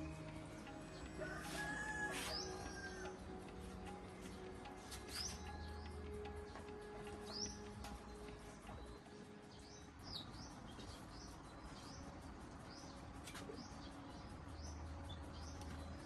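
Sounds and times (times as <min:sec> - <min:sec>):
small bird chirping: 0:04.2 - 0:16.0.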